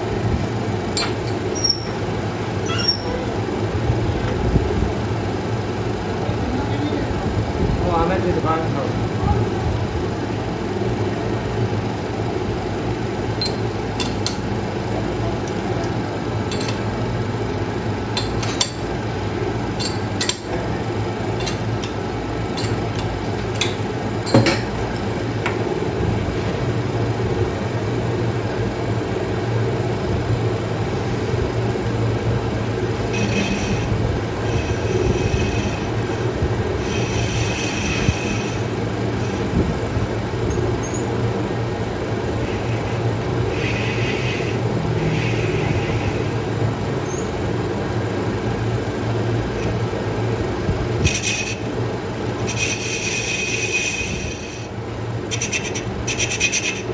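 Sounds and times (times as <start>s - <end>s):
workshop machine humming: 0.0s - 56.9s
high metallic ringing: 0.9s - 3.6s, 13.3s - 14.4s, 18.0s - 24.8s, 33.0s - 33.9s
light metallic clinks: 1.0s - 1.9s, 19.8s - 20.6s, 21.4s - 24.7s.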